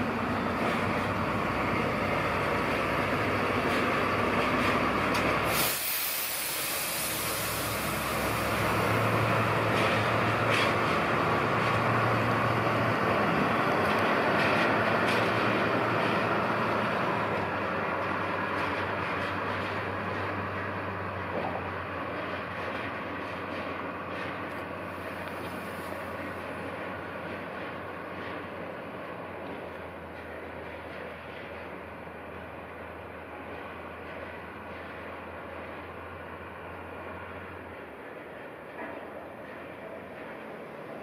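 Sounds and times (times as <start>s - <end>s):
electric locomotive running: 0.0s - 41.0s
compressed air hiss: 5.5s - 8.6s.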